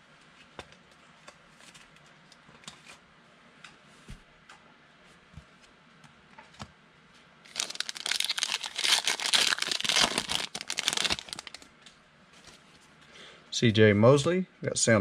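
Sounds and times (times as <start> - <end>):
plastic wrapper crinkling: 7.5 - 11.7.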